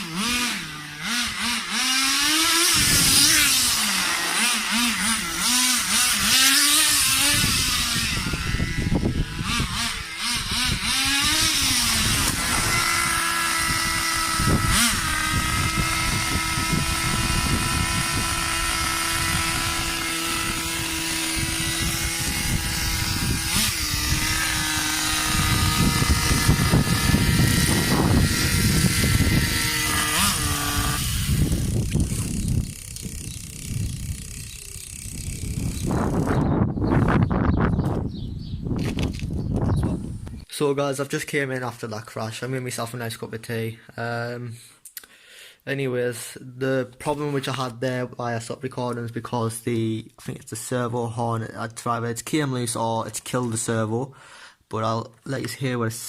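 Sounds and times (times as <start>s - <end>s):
small nitro engine revving: 0.0s - 37.8s.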